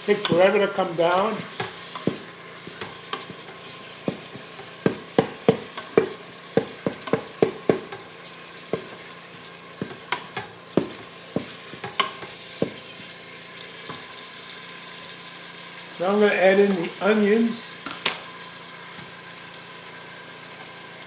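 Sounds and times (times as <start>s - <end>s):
utensil scraping a pot: 0.0s - 14.3s
ground beef sizzling: 0.0s - 21.0s.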